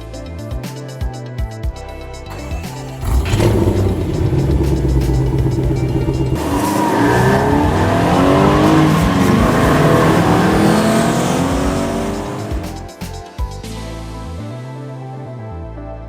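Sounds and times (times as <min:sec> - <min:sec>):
tire squeal hiss: 0:02.3 - 0:12.8
race car engines revving: 0:02.3 - 0:12.9.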